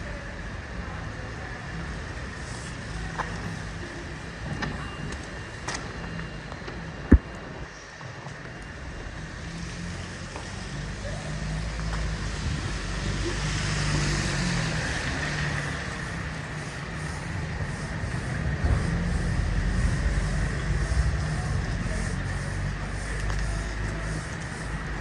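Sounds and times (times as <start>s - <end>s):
vehicle passing: 11.4s - 25.0s.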